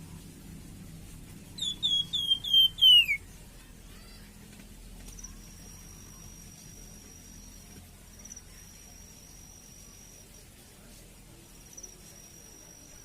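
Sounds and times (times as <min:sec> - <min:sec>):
songbird whistled notes: 0:01.6 - 0:03.3
faint high-pitched tone: 0:05.2 - 0:10.7, 0:11.3 - 0:13.0.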